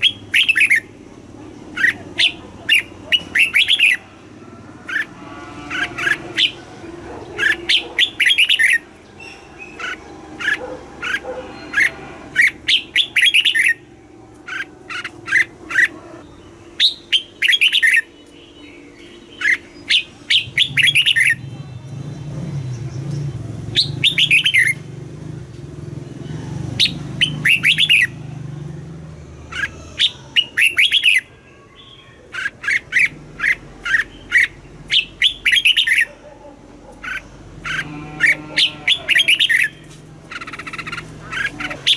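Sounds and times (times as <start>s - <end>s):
bird singing chirpy phrases: 0.0s - 4.1s, 5.7s - 24.8s, 26.0s - 41.9s.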